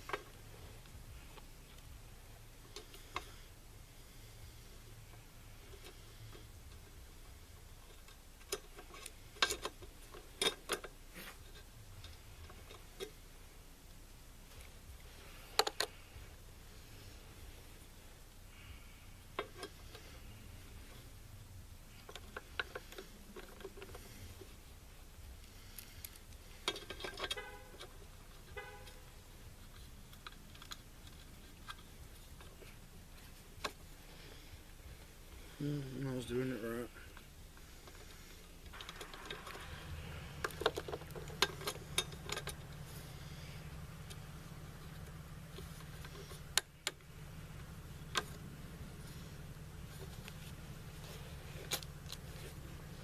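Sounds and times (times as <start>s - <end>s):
faint low hum: 0.0s - 53.0s
metal tools clicking and clinking: 7.8s - 10.9s, 40.4s - 42.8s
rifle parts clicking and tapping: 25.4s - 29.0s.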